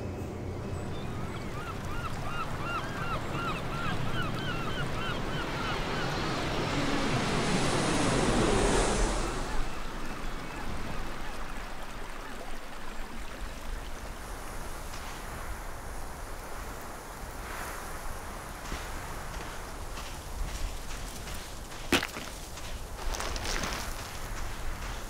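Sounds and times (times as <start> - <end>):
rushing water and wind: 0.0 - 25.0
bird calling: 0.6 - 7.0.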